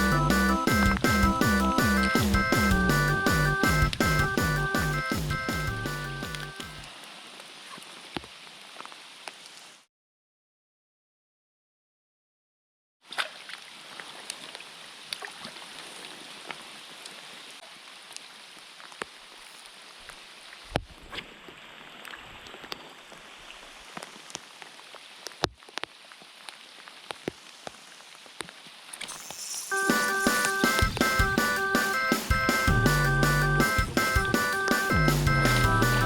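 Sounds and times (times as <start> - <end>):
heavy rain falling: 0.0 - 9.5, 21.3 - 36.0.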